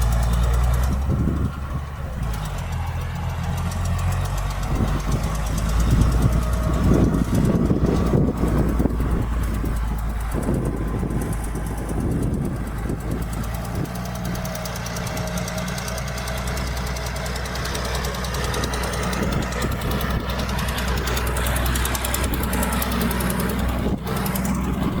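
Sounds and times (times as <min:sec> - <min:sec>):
heavy diesel engine knocking: 0:00.0 - 0:25.0.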